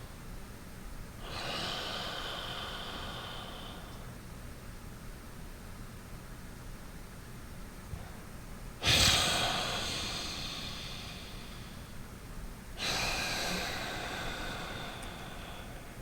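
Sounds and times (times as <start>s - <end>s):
breathing through the nose: 1.2s - 4.2s, 8.0s - 12.2s, 12.8s - 16.0s.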